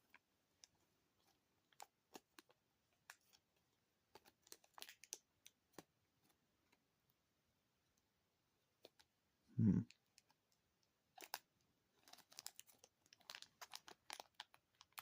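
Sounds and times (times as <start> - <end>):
plastic packaging crinkling: 12.0 - 15.0.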